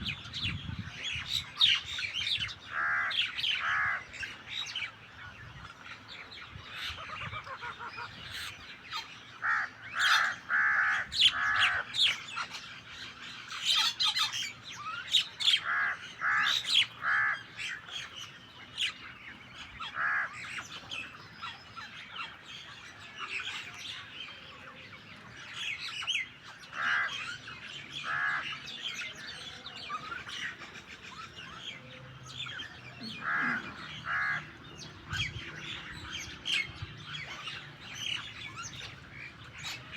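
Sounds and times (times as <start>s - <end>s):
birds chirping and whistling: 0.0s - 39.9s
harsh rasping bird squawks: 33.2s - 34.5s.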